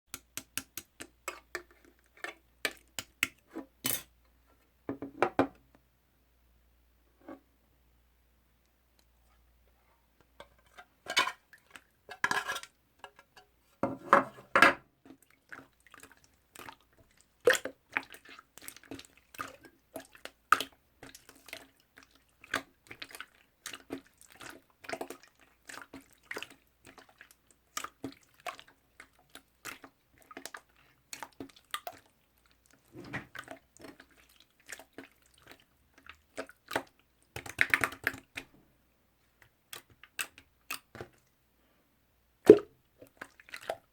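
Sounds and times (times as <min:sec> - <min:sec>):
slime squelching: 0:15.1 - 0:38.6, 0:42.5 - 0:43.9.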